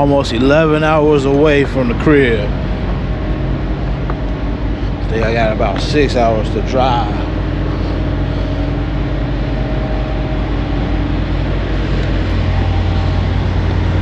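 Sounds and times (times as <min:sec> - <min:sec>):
truck diesel engine rumble: 0:00.0 - 0:14.0.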